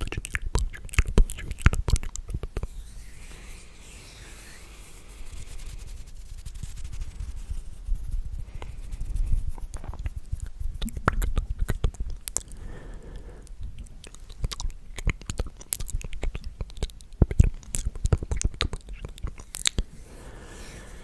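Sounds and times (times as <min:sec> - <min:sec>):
wet mouth clicks and smacks: 0:00.0 - 0:02.7, 0:09.7 - 0:12.6, 0:13.2 - 0:19.9.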